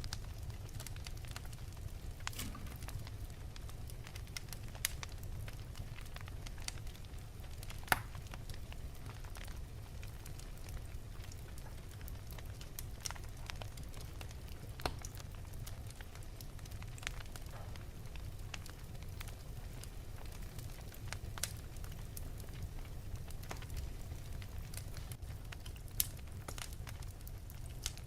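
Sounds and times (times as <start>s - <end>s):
flames low rumble: 0.0s - 28.0s
wood fire pops and snaps: 0.0s - 28.0s.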